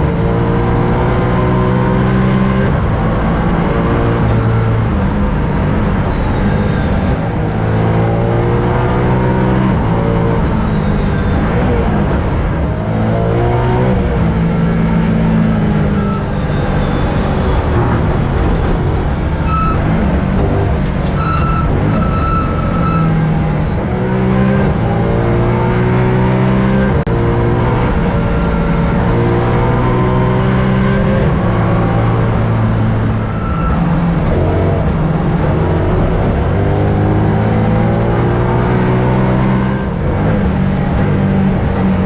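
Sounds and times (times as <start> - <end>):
race car engine at full throttle: 0.0 - 42.0
high-pitched squeal: 3.8 - 12.1, 15.5 - 24.6, 28.2 - 39.7.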